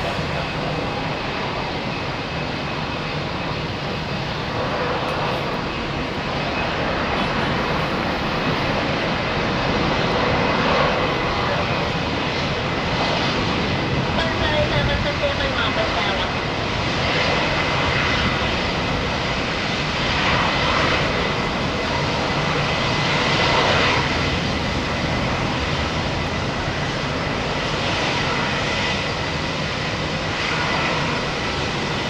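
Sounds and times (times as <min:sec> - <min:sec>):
jet engines rumbling: 0:00.0 - 0:32.0.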